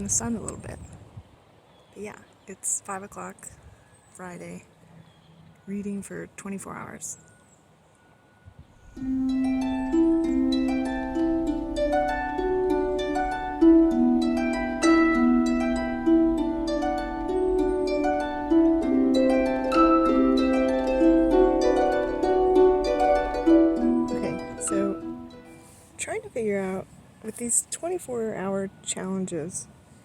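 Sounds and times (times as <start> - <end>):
solo harp music: 8.8 - 25.9.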